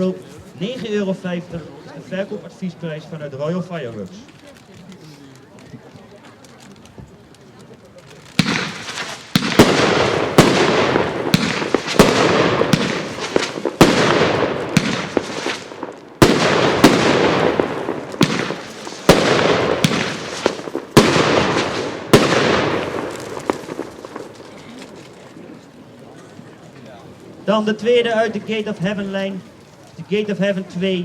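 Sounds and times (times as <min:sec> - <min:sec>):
fireworks launch bangs: 0:08.0 - 0:25.0.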